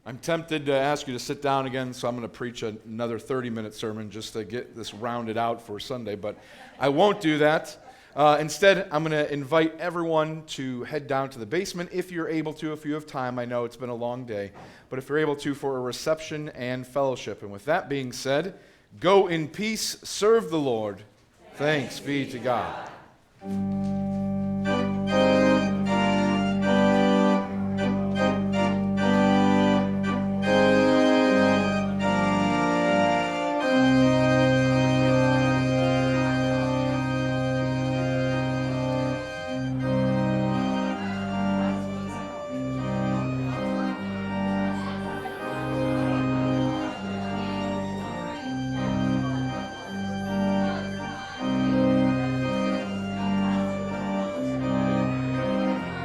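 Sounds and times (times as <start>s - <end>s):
church organ chords: 23.4s - 56.0s.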